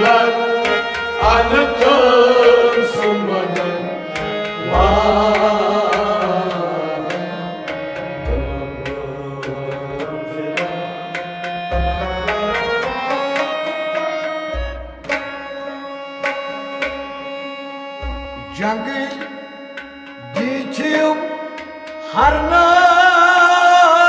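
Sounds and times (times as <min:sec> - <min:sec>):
struck string notes: 0:00.0 - 0:22.1
sustained melody tones: 0:00.0 - 0:23.6
hand drum: 0:08.0 - 0:15.5, 0:18.0 - 0:18.6.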